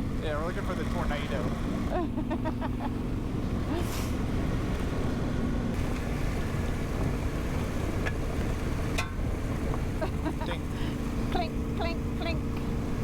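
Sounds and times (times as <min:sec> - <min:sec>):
motorcycle engine hum: 0:00.0 - 0:13.0
wind and road rush: 0:00.0 - 0:13.0.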